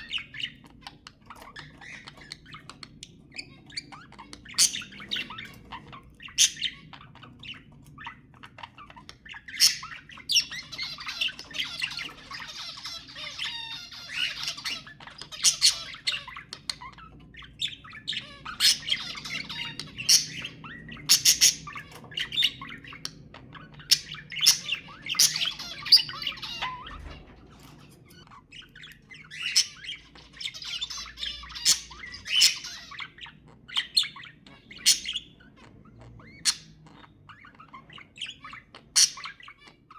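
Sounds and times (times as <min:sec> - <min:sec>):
budgerigar twittering: 0:00.0 - 0:39.9
budgerigar squawks: 0:17.6 - 0:23.0, 0:29.2 - 0:39.9.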